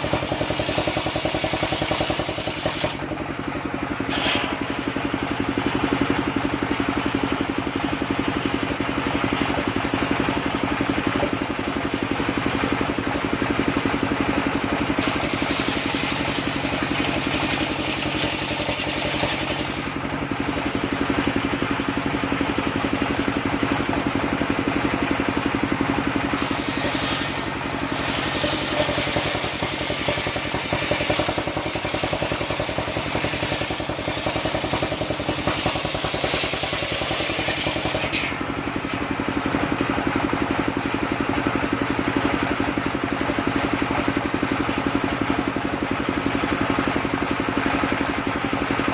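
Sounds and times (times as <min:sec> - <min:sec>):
circular saw cutting: 0:00.0 - 0:03.1, 0:04.0 - 0:05.4, 0:14.9 - 0:20.0, 0:26.2 - 0:39.0
engine droning: 0:00.0 - 0:48.9.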